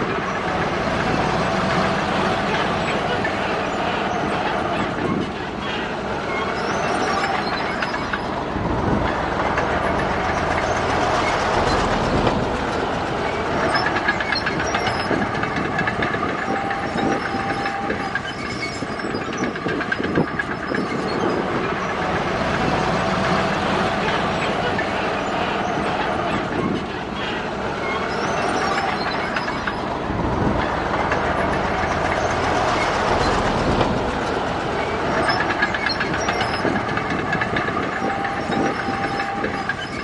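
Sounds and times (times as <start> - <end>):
bulldozer diesel engine: 0.0 - 40.0
steel tracks clanking: 0.0 - 40.0
brief squeals: 2.8 - 8.5, 13.3 - 15.6, 16.3 - 22.0, 23.4 - 30.0, 35.1 - 37.2.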